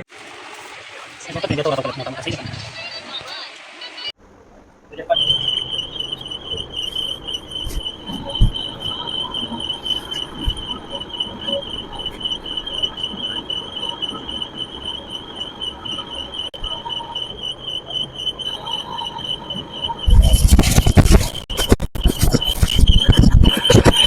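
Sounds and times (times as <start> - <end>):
insect trilling: 4.9 - 24.0.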